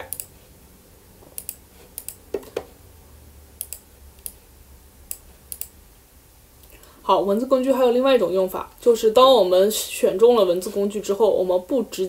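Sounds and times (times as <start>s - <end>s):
sharp computer clicks: 0.0s - 0.3s, 1.4s - 2.2s, 3.6s - 4.4s, 5.1s - 5.8s.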